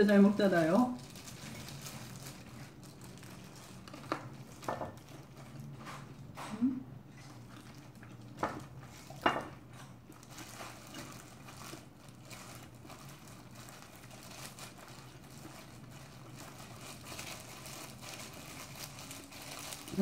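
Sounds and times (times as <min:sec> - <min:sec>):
plastic gloves crinkling: 0:00.0 - 0:20.0
chewing crunchy cartilage: 0:01.0 - 0:19.8.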